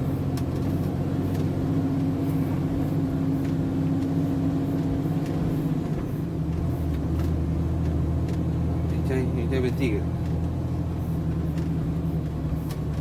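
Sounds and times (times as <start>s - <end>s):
truck diesel engine straining: 0.0s - 13.0s.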